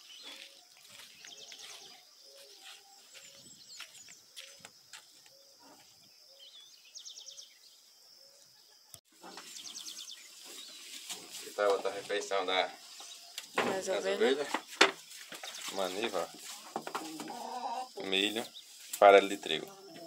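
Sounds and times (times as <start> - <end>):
faint birdsong chirps and trills: 0.0 - 20.0.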